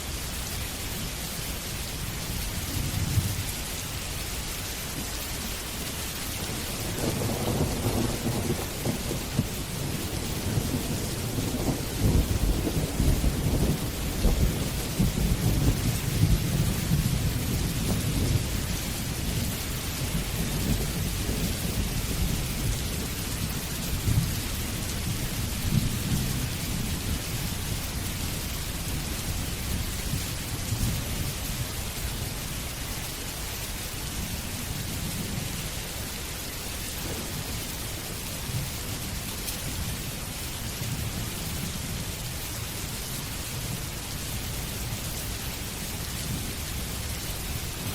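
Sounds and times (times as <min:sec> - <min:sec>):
steady rain: 0:00.0 - 0:47.9
thunder rumbling: 0:06.3 - 0:32.0, 0:34.7 - 0:40.0.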